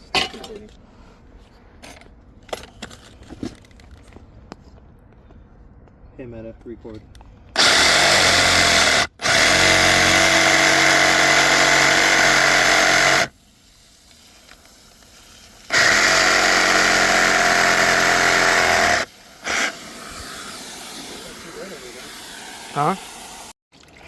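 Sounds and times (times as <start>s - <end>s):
power saw cutting plastic pipe: 7.6s - 13.3s, 15.6s - 23.2s.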